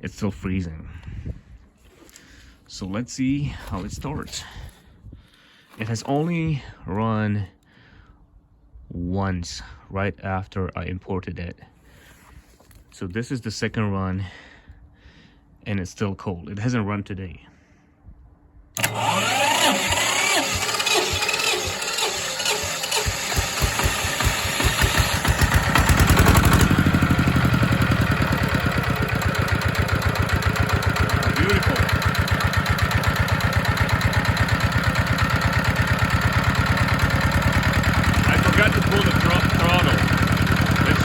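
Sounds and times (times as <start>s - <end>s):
diesel engine starting and idling: 18.8s - 41.0s.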